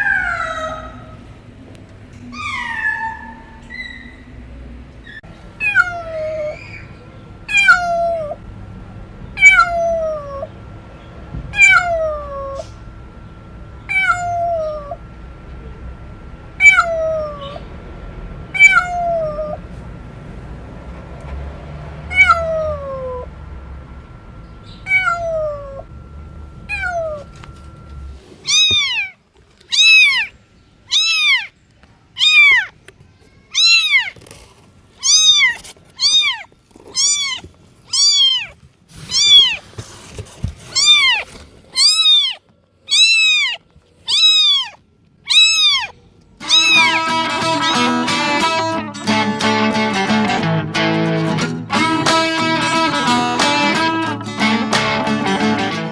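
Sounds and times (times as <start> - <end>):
cat meowing: 2.3 - 4.1, 5.6 - 6.9, 7.5 - 8.4, 9.4 - 10.5, 11.5 - 12.7, 13.9 - 15.0, 16.6 - 17.7, 18.5 - 19.6, 22.1 - 23.3, 24.7 - 25.9, 26.7 - 27.4, 28.4 - 31.5, 32.2 - 32.7, 33.5 - 34.2, 35.0 - 39.6, 40.7 - 49.2
guitar music: 7.4 - 28.2, 46.4 - 55.9.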